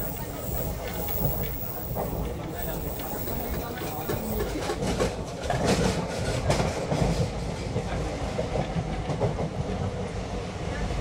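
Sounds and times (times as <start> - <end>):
train rumbling on track: 0.0 - 11.0.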